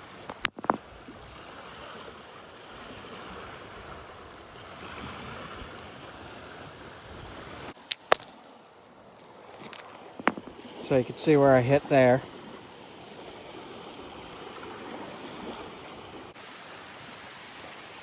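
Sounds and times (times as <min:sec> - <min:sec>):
stream water rushing: 0:00.0 - 0:18.0
stone knapping strikes: 0:00.3 - 0:00.8, 0:07.8 - 0:08.5, 0:09.6 - 0:10.6.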